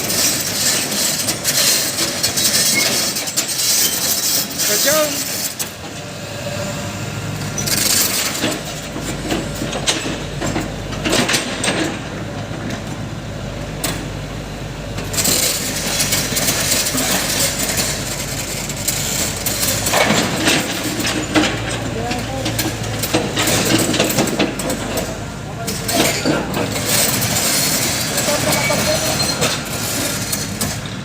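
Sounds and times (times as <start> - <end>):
diesel engine running: 0.0 - 31.0
metallic clanks and knocks: 18.9 - 29.6.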